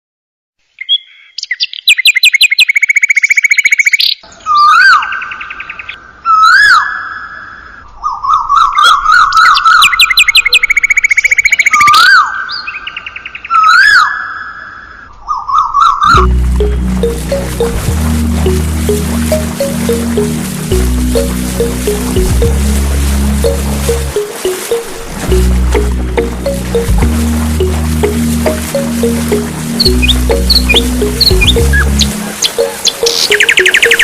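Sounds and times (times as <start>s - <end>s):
bird chirping and trilling: 0.8s - 7.3s, 8.0s - 14.6s, 28.6s - 34.0s
music: 16.1s - 34.0s.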